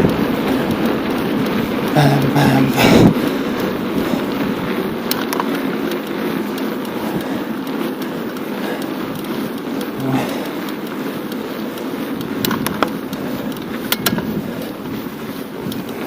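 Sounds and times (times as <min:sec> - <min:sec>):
wind over microphone: 0:00.0 - 0:05.4, 0:12.2 - 0:16.0
bicycle tyres rolling: 0:00.0 - 0:16.0.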